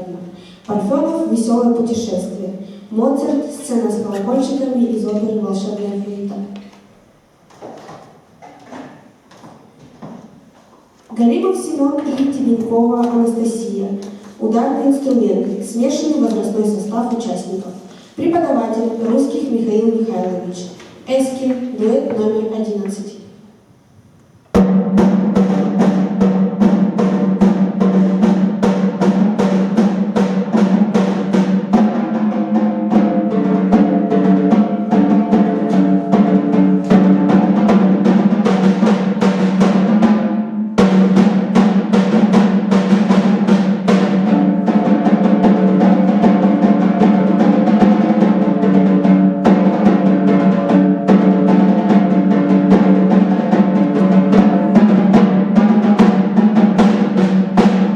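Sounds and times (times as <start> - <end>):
drums fast strokes and rolls: 24.6 - 57.9.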